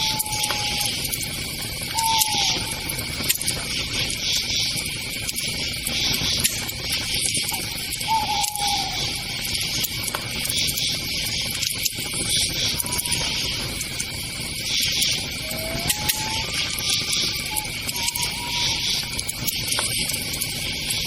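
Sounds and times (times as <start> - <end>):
falling whistle-like call: 0.0 - 1.2, 1.8 - 3.2, 8.0 - 9.8, 12.8 - 13.6, 15.2 - 19.4
campfire crackling: 0.0 - 21.0
crickets chirping: 0.0 - 21.0.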